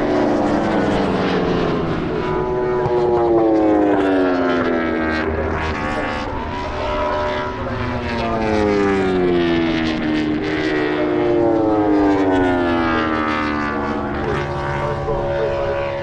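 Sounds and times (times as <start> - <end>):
race motorcycle engines revving: 0.0 - 16.0.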